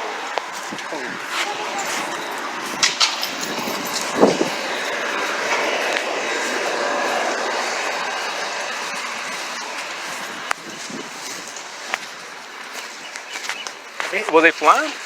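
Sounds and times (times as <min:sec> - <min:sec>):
vehicle noise: 0:00.0 - 0:15.0.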